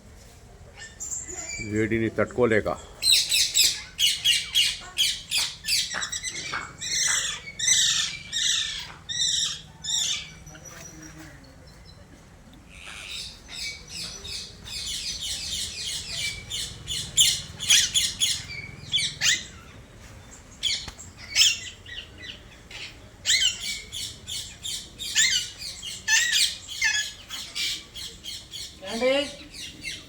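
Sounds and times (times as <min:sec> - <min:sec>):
parakeets squawking: 0:03.0 - 0:10.7, 0:12.7 - 0:19.9, 0:20.6 - 0:30.0.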